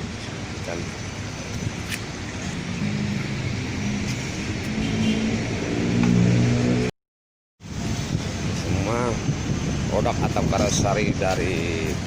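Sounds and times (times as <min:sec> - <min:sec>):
road traffic noise: 0:00.0 - 0:07.0, 0:07.6 - 0:12.0
bus diesel engine accelerating: 0:02.2 - 0:06.9.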